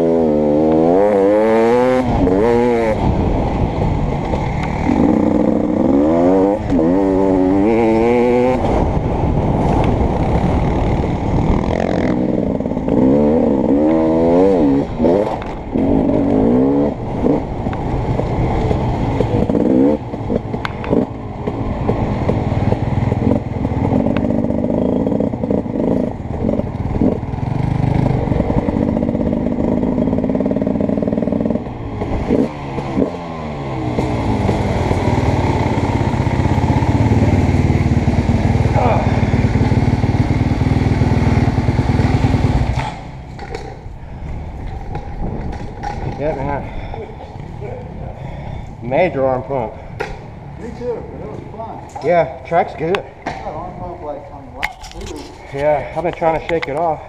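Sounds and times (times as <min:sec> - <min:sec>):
motocross bike engine revving: 0:00.0 - 0:43.8
bike rattles and knocks: 0:41.9 - 0:47.4, 0:54.5 - 0:57.0.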